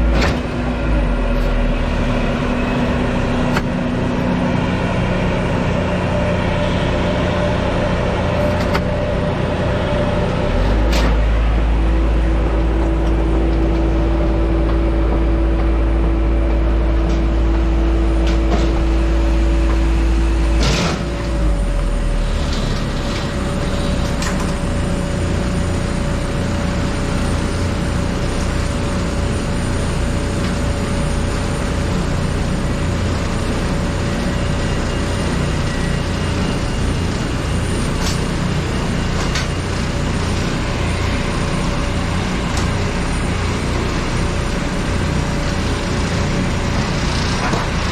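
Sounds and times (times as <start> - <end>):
machinery clunk: 0.0 - 1.8, 8.2 - 21.6
machinery humming with held tone: 0.0 - 47.9.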